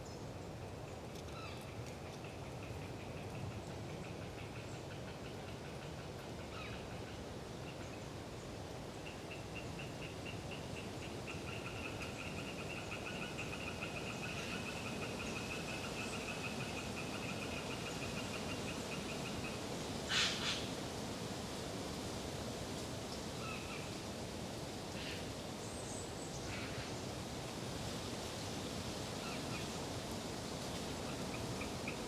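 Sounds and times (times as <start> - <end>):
tree frog calling in pulses: 9.3 - 20.7.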